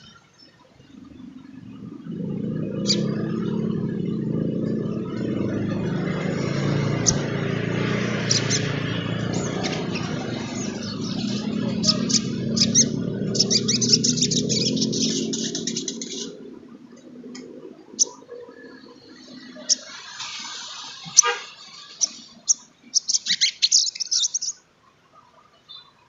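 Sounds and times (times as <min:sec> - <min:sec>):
low vehicle rumble: 0:00.0 - 0:22.8
bird chirping and twittering: 0:00.0 - 0:24.6.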